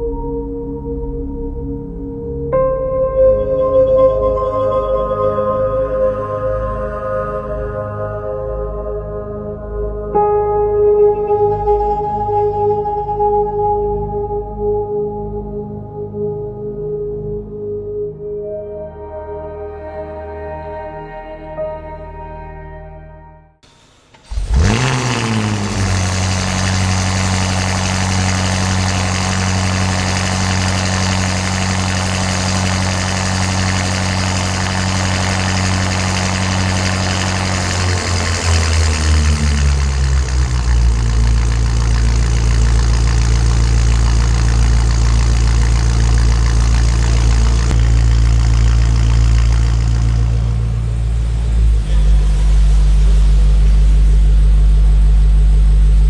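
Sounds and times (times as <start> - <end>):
car engine idling: 23.8 - 54.8.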